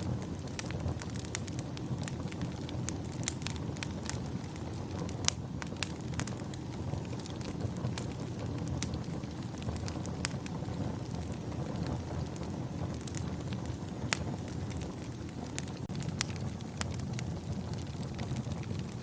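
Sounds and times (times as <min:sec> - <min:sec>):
low rumble of flame: 0:00.0 - 0:19.0
wood fire crackling and popping: 0:00.0 - 0:19.0.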